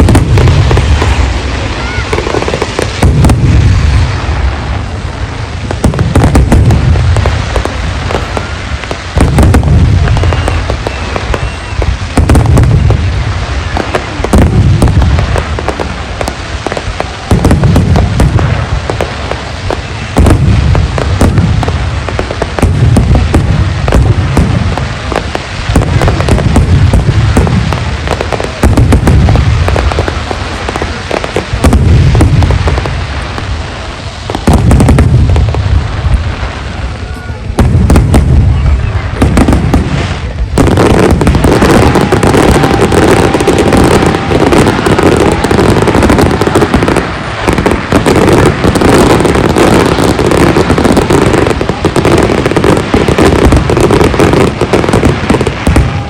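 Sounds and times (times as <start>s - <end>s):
firework shells booming: 0.0s - 56.0s
fireworks crackling and popping: 0.0s - 56.0s.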